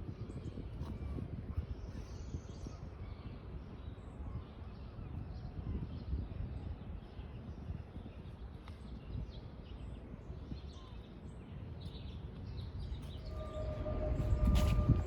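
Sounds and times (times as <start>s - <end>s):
low background rumble: 11.4s - 15.0s
steady horn-like tone: 13.2s - 15.0s.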